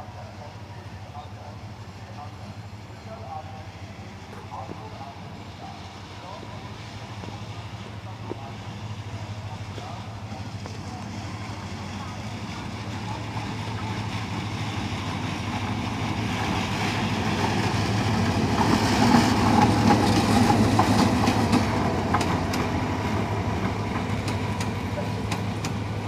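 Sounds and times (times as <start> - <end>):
diesel locomotive engine drone: 0.0 - 26.0
train wheels clicking over rail joints: 17.3 - 26.0.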